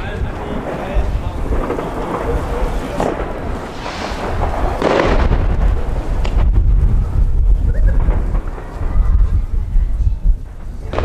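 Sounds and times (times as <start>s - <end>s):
distant fireworks booming: 0.0s - 11.0s
wind rumble on microphone: 0.0s - 11.0s.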